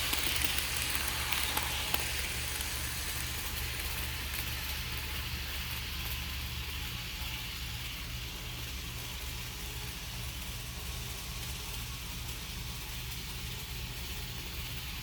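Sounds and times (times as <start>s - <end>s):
constant hiss: 0.0s - 6.2s
model train running: 0.0s - 15.0s.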